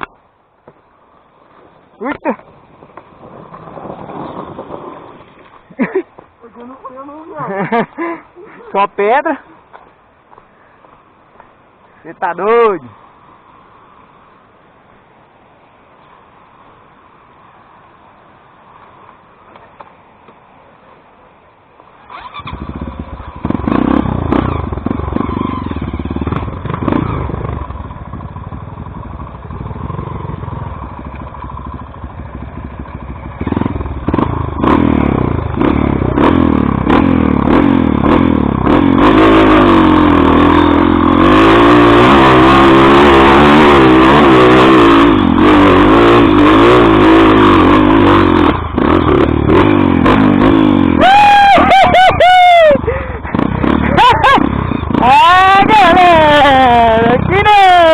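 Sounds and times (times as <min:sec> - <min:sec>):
motorcycle engine revving: 0:22.0 - 0:57.9.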